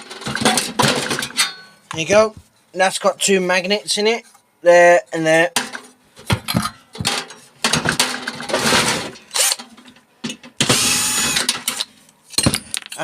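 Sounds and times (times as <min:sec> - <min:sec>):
metal parts rattling and scraping: 0:00.0 - 0:01.8, 0:05.6 - 0:10.1.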